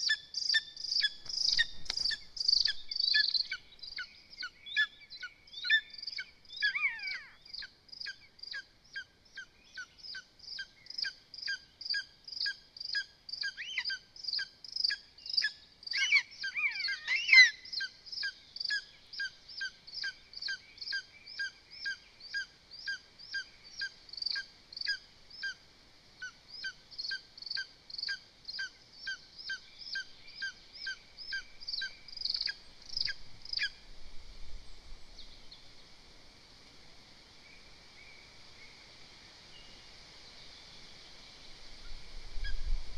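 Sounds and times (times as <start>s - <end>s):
bird calling in short high calls: 5.6s - 7.7s, 13.4s - 14.5s, 15.9s - 19.7s.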